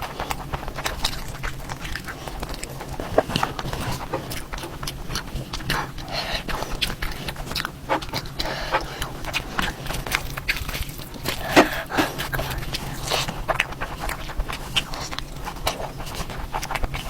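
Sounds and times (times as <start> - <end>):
lip-smacking: 0.0 - 17.0
wet chewing: 0.0 - 17.0.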